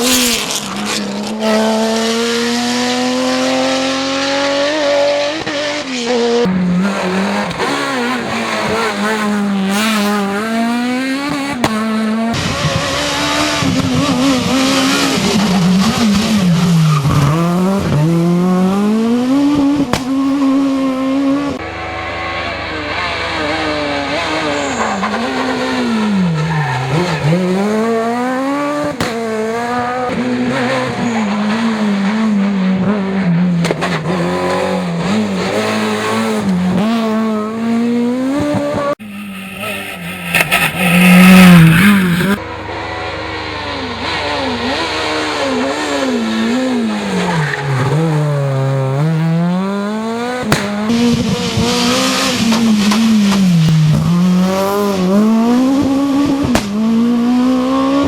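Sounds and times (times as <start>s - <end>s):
rally car engines revving: 0.0s - 58.0s
tyre squeal: 39.0s - 42.4s.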